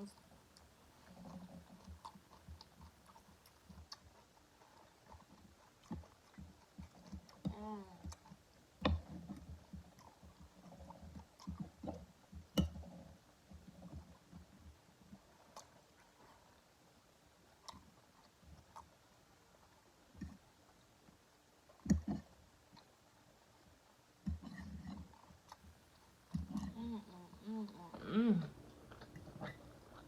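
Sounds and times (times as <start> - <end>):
person chewing: 0.6 - 11.8, 24.3 - 30.0.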